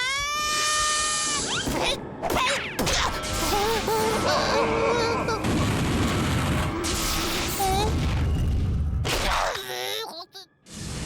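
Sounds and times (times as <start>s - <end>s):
squeaky character vocalizations: 0.0s - 5.7s, 7.3s - 8.1s, 9.1s - 10.5s.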